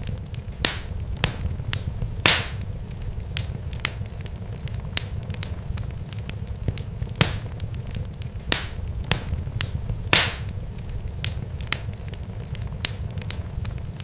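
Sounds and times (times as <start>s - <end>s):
low rumble: 0.0s - 14.0s
sharp crackles and pops: 0.0s - 14.0s.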